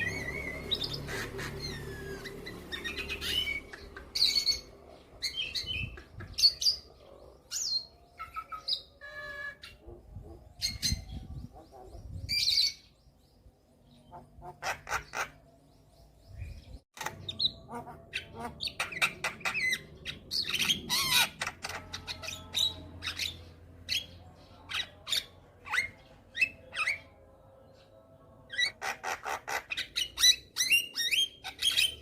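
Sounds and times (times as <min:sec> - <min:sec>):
bird singing clicks and squawks: 0:18.7 - 0:22.1.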